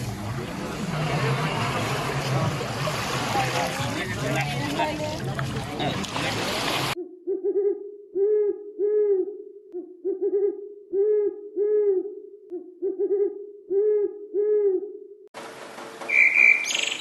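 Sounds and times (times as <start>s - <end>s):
bird hooting call: 16.1s - 17.0s.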